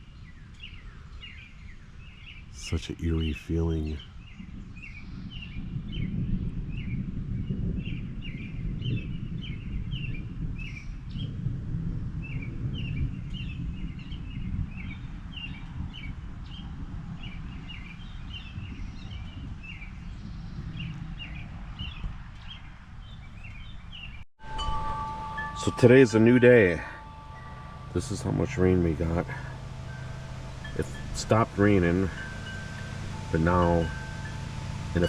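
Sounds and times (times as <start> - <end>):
birds chirping: 0.0 - 6.9, 13.4 - 35.0
low background rumble: 24.4 - 35.0.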